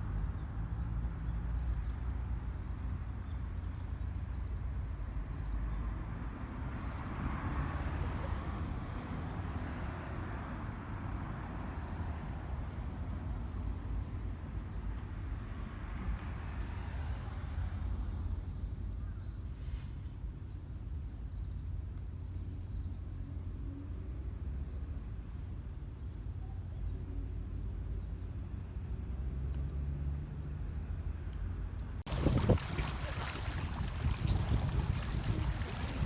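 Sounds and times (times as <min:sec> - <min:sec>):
low outdoor rumble: 0:13.0 - 0:36.0.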